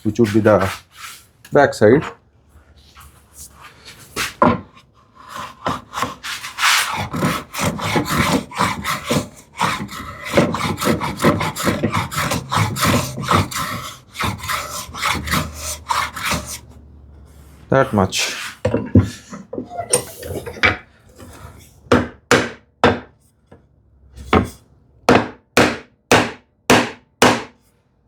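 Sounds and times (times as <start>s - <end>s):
hand plane shaving wood: 0.0s - 1.3s, 5.1s - 16.8s, 17.4s - 19.4s
knocks on wood: 21.9s - 23.1s, 25.1s - 27.5s.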